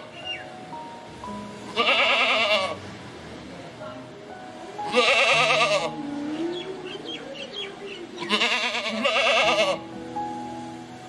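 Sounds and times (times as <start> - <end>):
soft background music: 0.0 - 11.0
goat bleating: 1.7 - 2.8, 4.8 - 6.0, 8.2 - 9.8.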